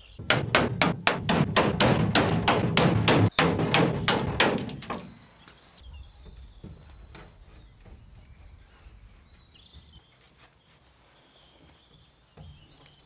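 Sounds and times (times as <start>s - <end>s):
rapid hammer blows on metal: 0.0s - 5.2s.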